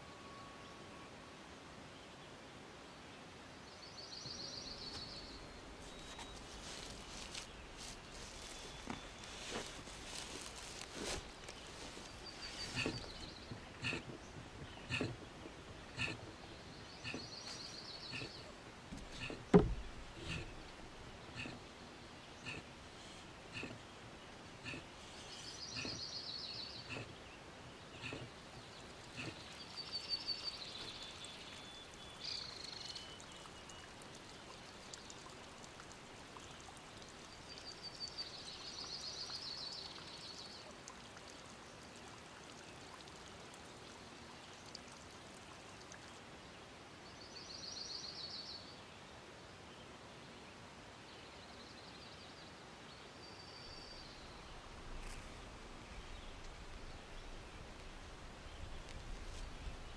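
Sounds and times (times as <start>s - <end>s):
faint woodland hiss: 1.9s - 59.9s
songbird singing trilled phrases: 11.8s - 34.0s.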